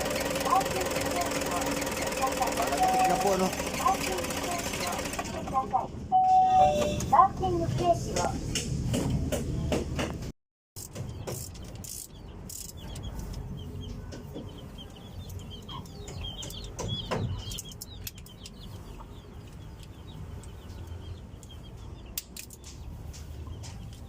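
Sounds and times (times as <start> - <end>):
chickens clucking: 12.2 - 24.0
sharp clicks: 21.4 - 24.0.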